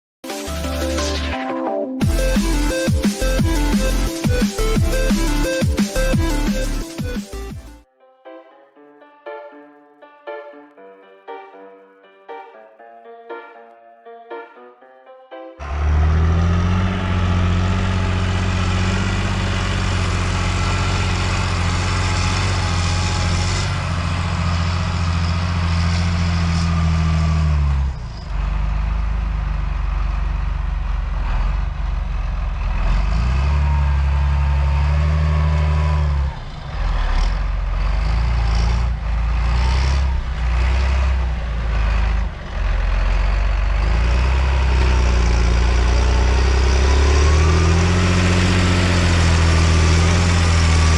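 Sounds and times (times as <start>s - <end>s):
tractor diesel engine running hard: 2.0s - 6.8s, 15.6s - 50.9s.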